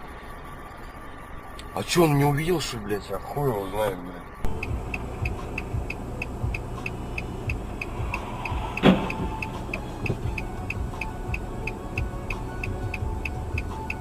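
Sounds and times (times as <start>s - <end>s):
indicator relay ticking: 4.4s - 14.0s
engine rumble: 4.5s - 14.0s
thump: 8.6s - 9.4s.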